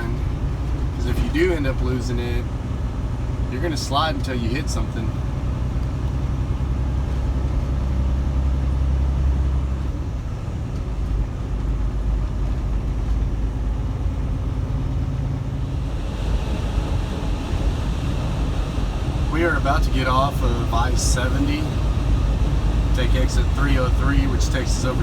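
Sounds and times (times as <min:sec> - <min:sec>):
road noise rumble: 0:00.0 - 0:25.0
truck diesel engine hum: 0:00.0 - 0:25.0
cab fan hiss: 0:15.6 - 0:25.0.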